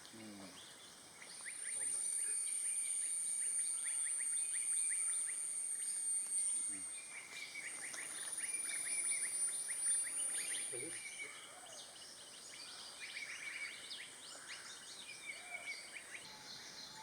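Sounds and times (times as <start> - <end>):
high-pitched insect drone: 1.8 - 6.9.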